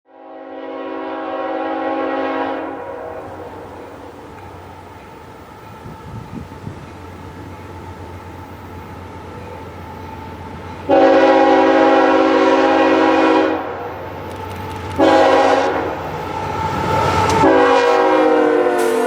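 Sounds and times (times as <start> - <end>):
locomotive air horn: 0.1 - 3.9, 10.9 - 13.9, 15.0 - 19.0
train rumble: 0.6 - 19.0.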